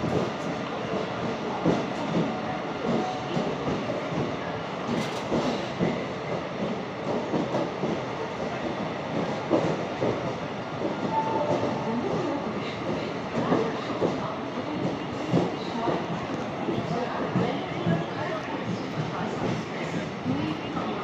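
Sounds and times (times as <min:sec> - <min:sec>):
train rolling rumble: 0:00.0 - 0:21.0.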